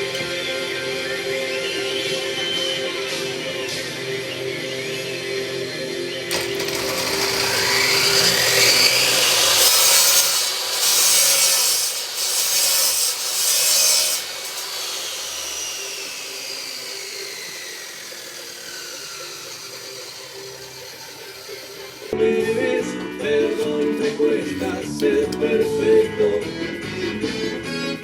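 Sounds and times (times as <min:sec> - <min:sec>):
power saw cutting wood: 0:06.3 - 0:22.2.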